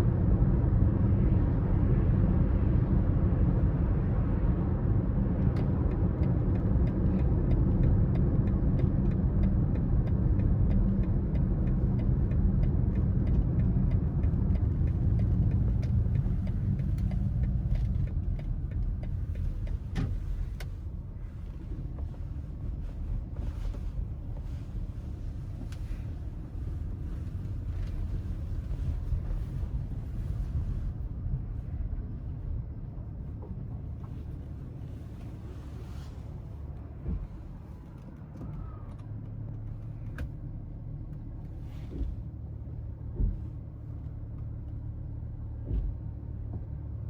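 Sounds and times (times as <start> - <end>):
car engine and tyre rumble: 0.0 - 47.0.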